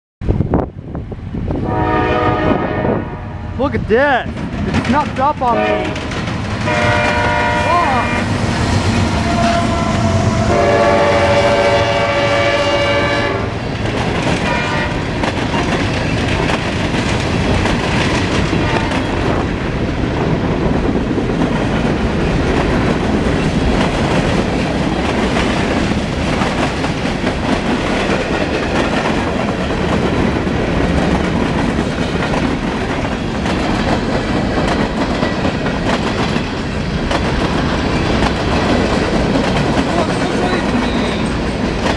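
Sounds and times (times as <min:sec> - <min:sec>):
train rumble and wheel clatter: 0:00.2 - 0:41.9
train horn blasts: 0:01.6 - 0:03.5, 0:05.5 - 0:06.0, 0:06.6 - 0:08.4, 0:09.0 - 0:13.6, 0:14.4 - 0:15.1, 0:18.6 - 0:19.2.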